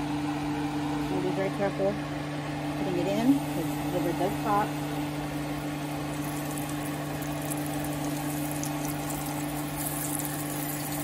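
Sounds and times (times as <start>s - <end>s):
food frying in hot oil: 2.5s - 11.0s.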